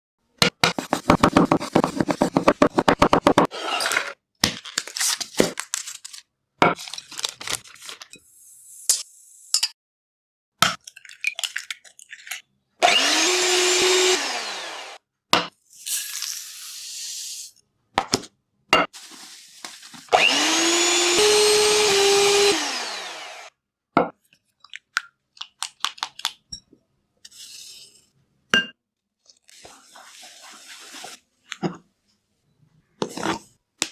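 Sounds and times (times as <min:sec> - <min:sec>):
kitchen motor spinning: 0:12.8 - 0:15.0, 0:20.1 - 0:23.5.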